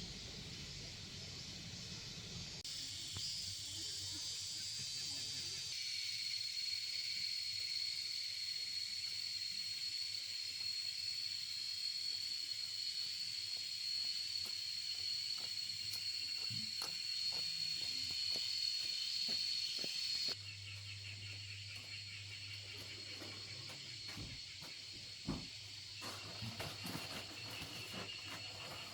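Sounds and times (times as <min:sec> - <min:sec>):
insects droning: 0:00.0 - 0:28.9.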